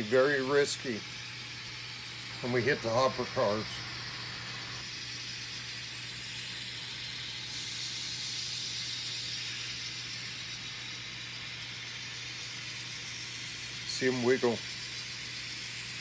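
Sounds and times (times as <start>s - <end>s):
model train whirring: 0.0s - 16.0s
steady low hum: 0.0s - 16.0s.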